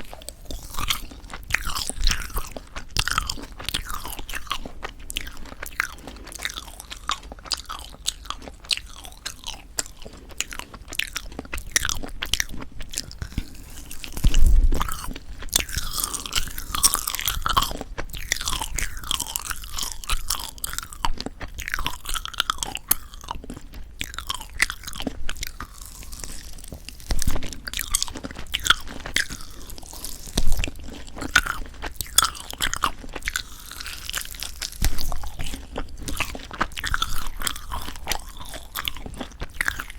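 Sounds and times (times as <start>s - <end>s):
chewing sticky marshmallow: 0.0s - 39.9s.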